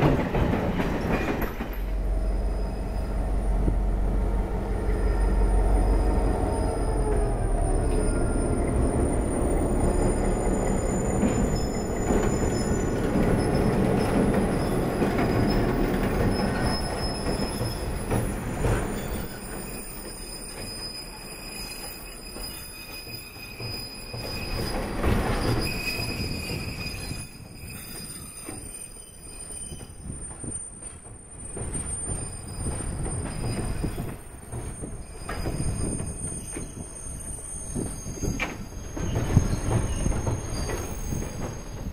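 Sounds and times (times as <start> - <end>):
diesel locomotive engine rumble: 0.0 - 22.4
steel wheels squealing: 1.0 - 3.7, 4.4 - 41.9.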